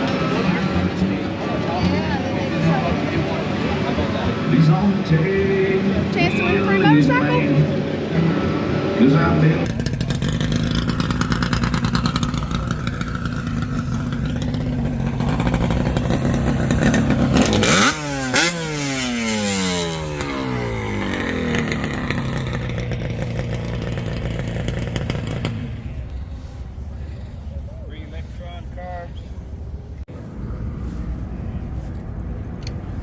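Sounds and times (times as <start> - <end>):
motorcycle engine revving: 8.2 - 27.6.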